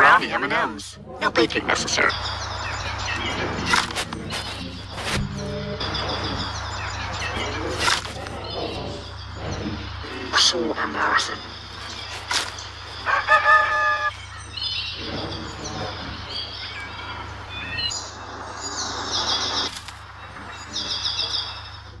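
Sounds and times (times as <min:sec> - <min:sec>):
steady low hum: 0:00.0 - 0:22.0
rooster-like bird crow: 0:13.0 - 0:14.2.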